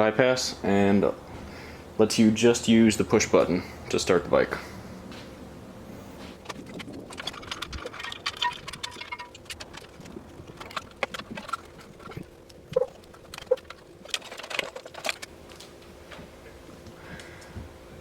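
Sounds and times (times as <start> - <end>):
light clicks rattles and rustles: 6.3 - 17.5.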